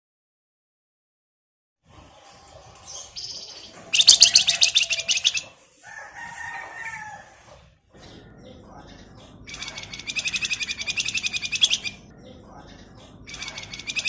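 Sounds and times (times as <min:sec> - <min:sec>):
bird singing buzzy trill: 0:02.8 - 0:05.6, 0:08.1 - 0:14.0
bird whistled notes: 0:02.9 - 0:05.5, 0:09.5 - 0:12.1, 0:13.3 - 0:14.0.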